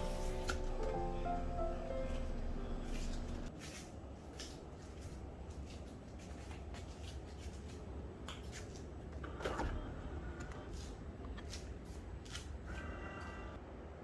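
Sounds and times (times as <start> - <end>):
low steady hum: 0.0 - 3.5.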